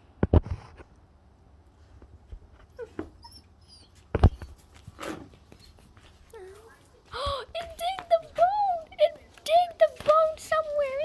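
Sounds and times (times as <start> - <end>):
dog whimpering: 2.8 - 4.6.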